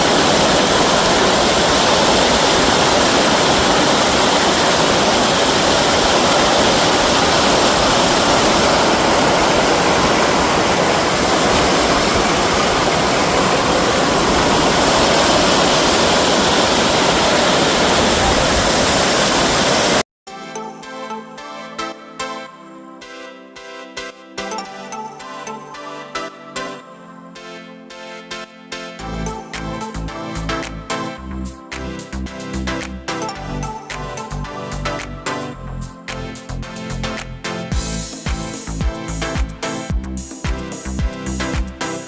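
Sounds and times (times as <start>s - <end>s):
water rushing over spillway: 0.0s - 20.0s.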